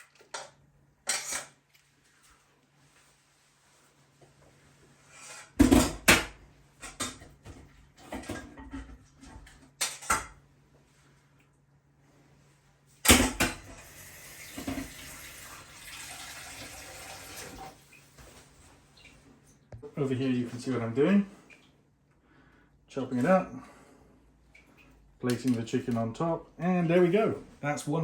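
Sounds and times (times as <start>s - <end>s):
tap running into sink: 13.8s - 17.8s.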